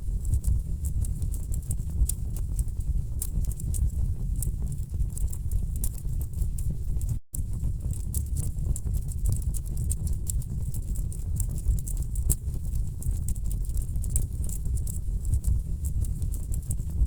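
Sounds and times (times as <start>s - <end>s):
low rumble of flames: 0.0s - 17.0s.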